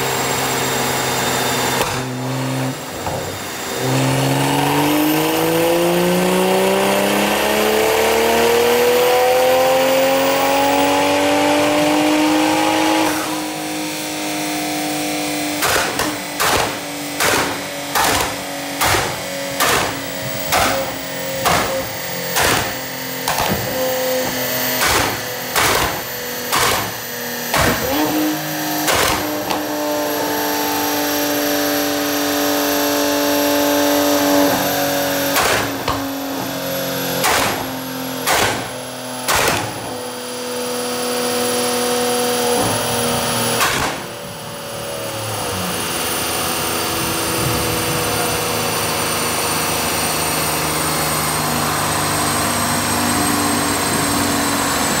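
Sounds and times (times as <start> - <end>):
car engine droning on dyno: 0.0 - 55.0
sharp exhaust bangs: 13.0 - 30.2, 33.6 - 40.7, 41.7 - 44.4.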